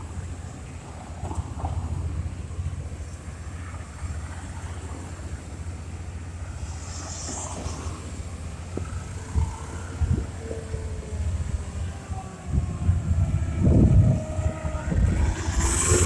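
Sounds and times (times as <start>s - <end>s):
city street noise: 0.0s - 16.0s
wind buffeting microphone: 0.0s - 16.0s
short hiss: 6.5s - 9.1s.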